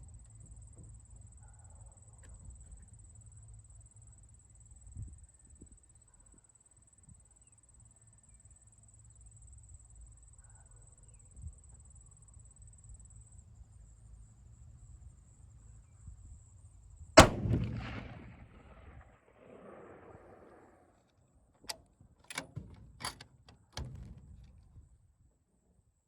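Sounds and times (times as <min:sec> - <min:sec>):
faint low rumble: 0:14.3 - 0:20.9
rifle shot with echo: 0:17.2 - 0:21.0.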